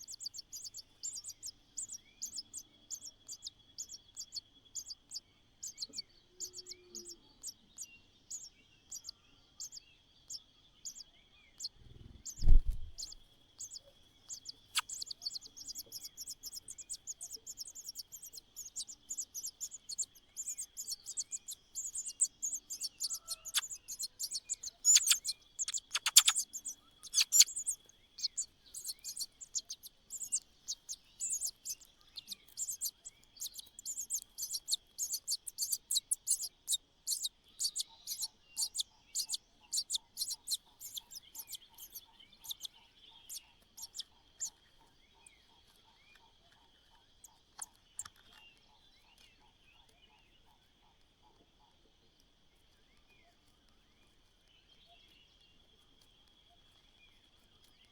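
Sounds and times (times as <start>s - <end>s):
nestling birds begging chirps: 0.0s - 51.3s
low thump: 12.4s - 13.0s.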